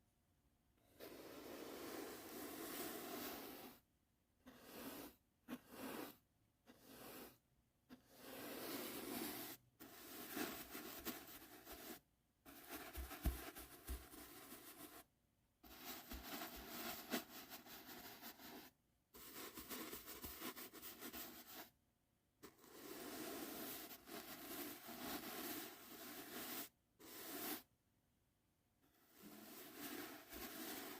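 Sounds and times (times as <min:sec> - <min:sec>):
brush rustling over microphone: 0:29.2 - 0:30.9.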